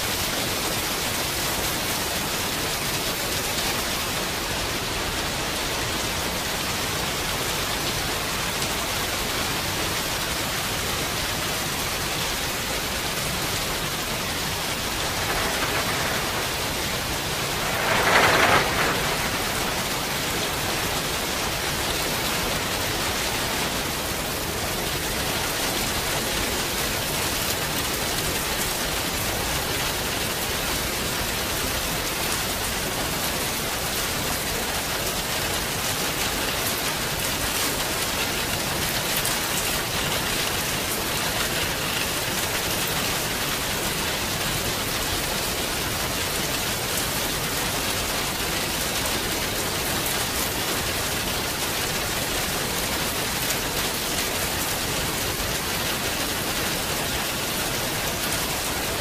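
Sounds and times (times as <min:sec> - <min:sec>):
steady rain falling: 0:00.0 - 0:59.0
brief rush: 0:14.6 - 0:21.5.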